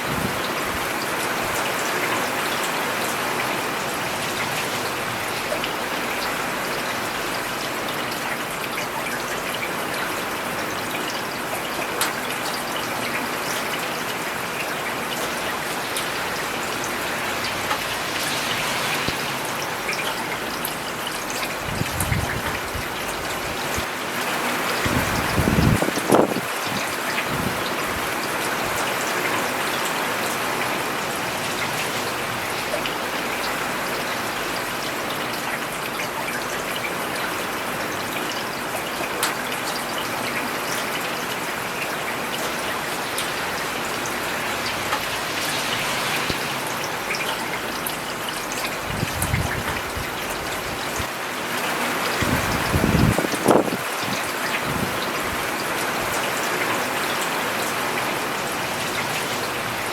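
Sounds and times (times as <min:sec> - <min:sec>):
rain on a paved road: 0:00.0 - 0:59.9.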